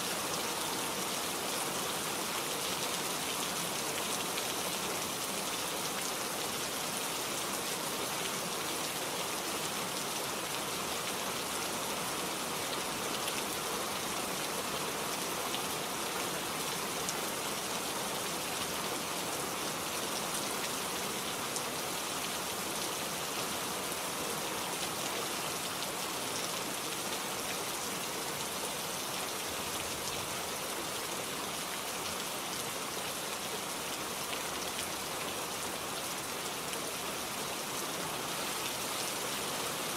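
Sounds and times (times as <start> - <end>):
rain on foliage: 0.0 - 39.9.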